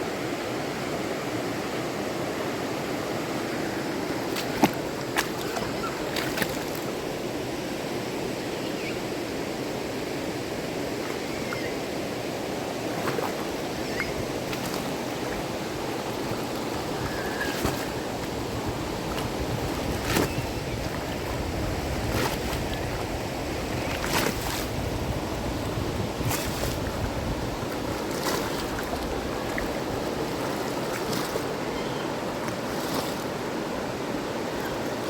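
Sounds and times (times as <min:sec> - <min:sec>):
rushing river water: 0:00.0 - 0:35.0.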